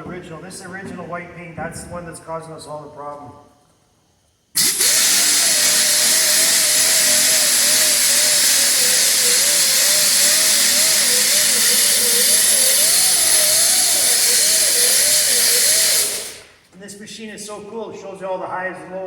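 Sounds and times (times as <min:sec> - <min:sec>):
power sander grinding metal: 0:04.6 - 0:16.5.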